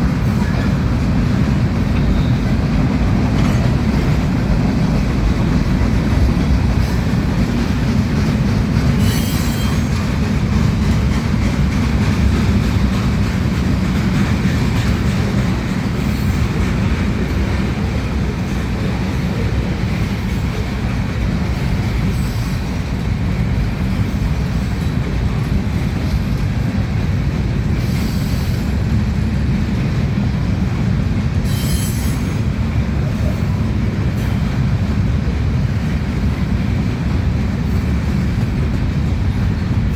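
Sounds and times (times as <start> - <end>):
train wheels rumbling on rails: 0.0 - 39.9
high wheel squeals: 8.9 - 10.2, 31.5 - 32.5.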